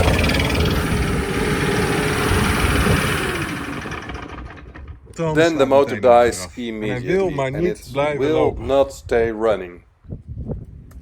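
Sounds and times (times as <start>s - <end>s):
leaf blower: 0.0s - 4.8s
motorcycle engine running: 0.0s - 5.0s.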